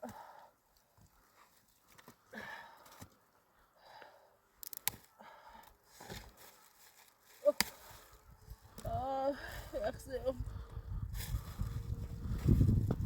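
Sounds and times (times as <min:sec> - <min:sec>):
quiet breathing: 0:00.0 - 0:07.0, 0:07.7 - 0:12.6
crunches and clicks in snow: 0:04.6 - 0:08.9, 0:11.1 - 0:13.0.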